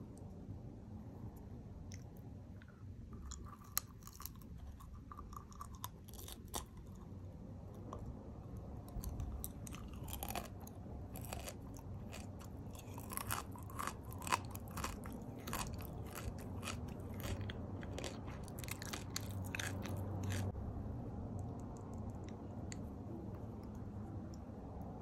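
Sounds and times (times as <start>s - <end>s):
crunchy candy chewing: 3.1s - 7.2s, 8.9s - 20.6s.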